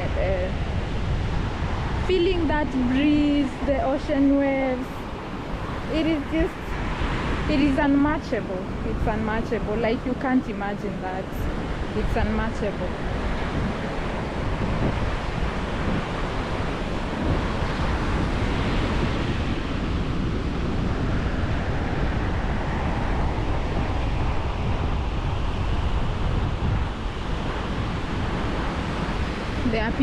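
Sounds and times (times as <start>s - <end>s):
ocean surf on beach: 0.0s - 30.0s
wind buffeting microphone: 0.0s - 30.0s.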